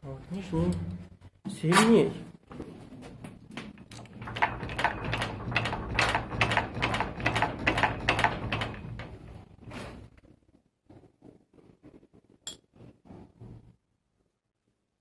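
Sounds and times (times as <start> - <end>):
metallic knocking and clicking: 3.6 - 9.3.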